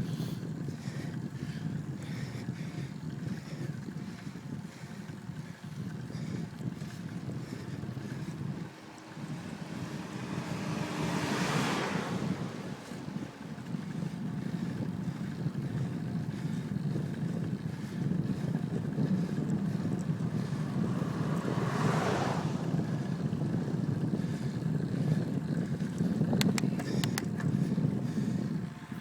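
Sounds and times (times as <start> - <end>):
wind rumbling on microphone: 0.0 - 29.0
sharp clicks: 26.3 - 27.5.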